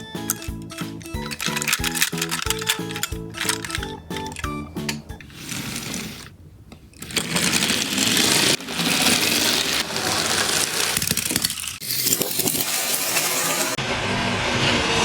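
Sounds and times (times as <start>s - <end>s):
background music: 0.0s - 5.4s
toy car wheels rattling: 0.0s - 13.8s.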